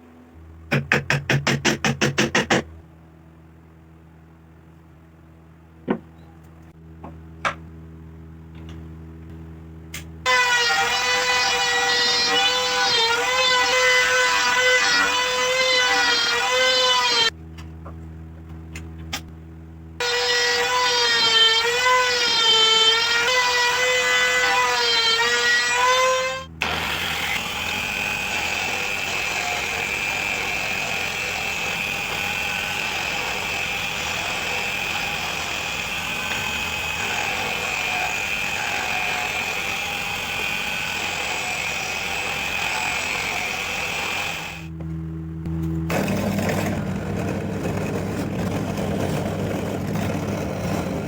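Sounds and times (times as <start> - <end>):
power tool whining: 10.2 - 17.4, 20.0 - 51.0.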